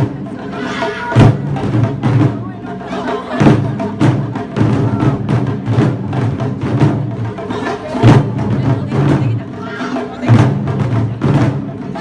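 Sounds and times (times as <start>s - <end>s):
drum strikes: 0.0s - 12.0s
festival music: 0.0s - 12.0s
wood block percussion: 0.0s - 12.0s.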